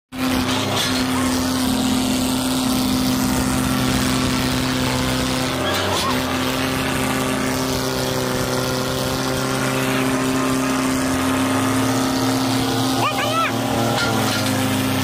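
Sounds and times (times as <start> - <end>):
diesel tractor engine running: 0.1 - 15.0.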